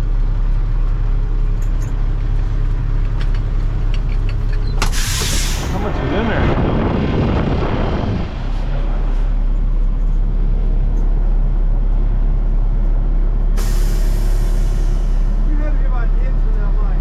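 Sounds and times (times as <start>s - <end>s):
heavy equipment engine humming: 0.0s - 17.0s
loud hiss: 4.8s - 5.9s, 13.6s - 15.4s.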